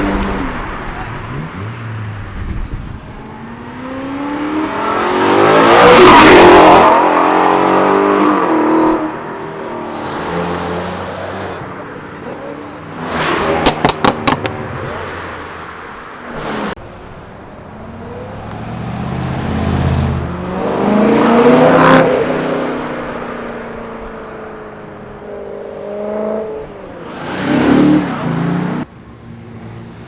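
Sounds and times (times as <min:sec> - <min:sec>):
car engines accelerating past: 0:17.9 - 0:24.0.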